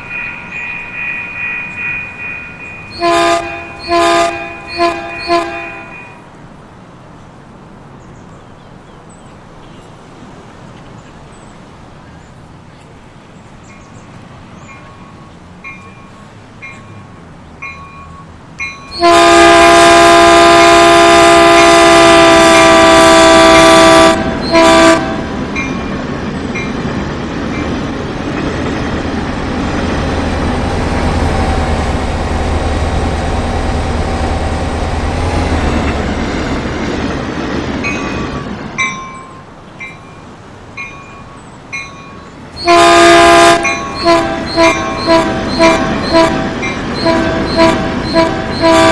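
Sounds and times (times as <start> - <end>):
train passing rumble: 0.0 - 48.9
train horn blasts: 2.8 - 6.2, 18.9 - 25.4, 29.6 - 36.2, 42.6 - 48.9.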